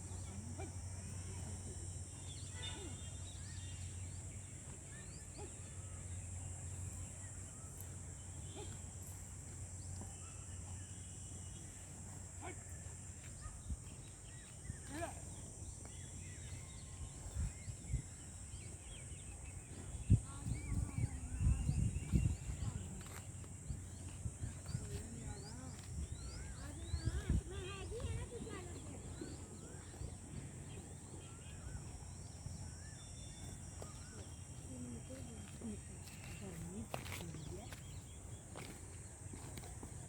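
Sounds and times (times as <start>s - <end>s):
bird chirps: 13.4s - 38.8s.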